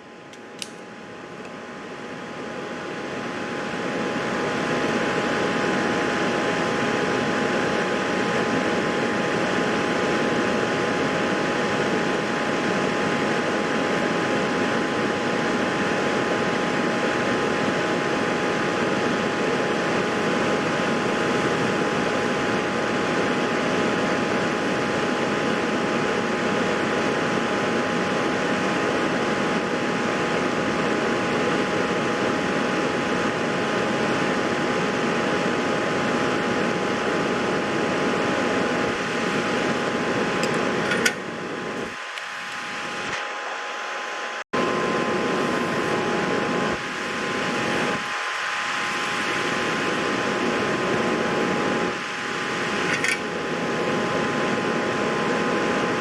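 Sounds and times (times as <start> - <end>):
fan whirring with faint whine: 0.0 - 56.0
small click: 0.3 - 0.8, 52.9 - 53.2.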